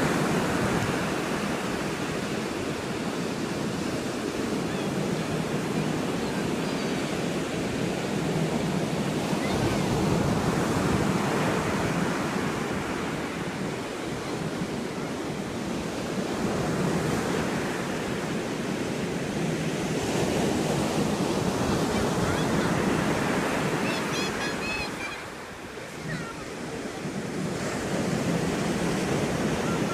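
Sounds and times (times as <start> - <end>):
ocean surf washing ashore: 0.0 - 29.9.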